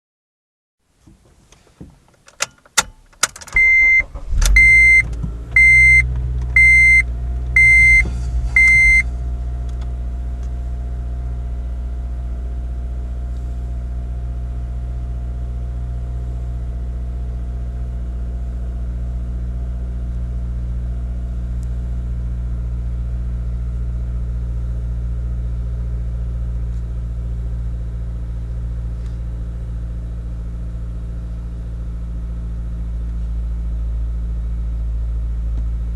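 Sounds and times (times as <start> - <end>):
car engine starting and idling: 1.2 - 35.9
dashboard chime beeping: 3.6 - 5.0, 5.6 - 6.0, 6.6 - 7.0, 7.6 - 9.0.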